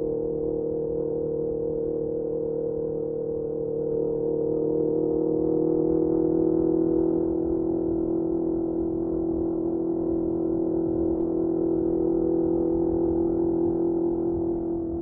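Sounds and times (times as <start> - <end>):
motorcycle engine steady note: 0.0 - 15.0
road and wind noise: 0.0 - 15.0.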